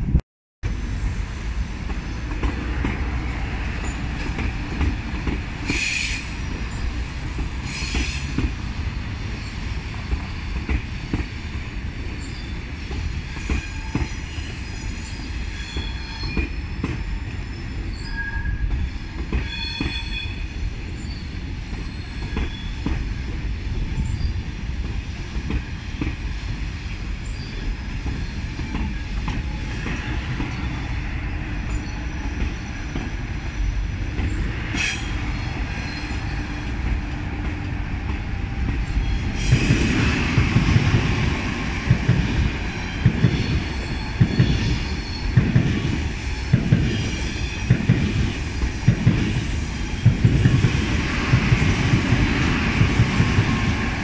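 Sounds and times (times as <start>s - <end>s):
wheels rumbling on rail: 0.0s - 54.0s
high-pitched wheel squeals: 13.3s - 22.8s, 34.8s - 36.7s.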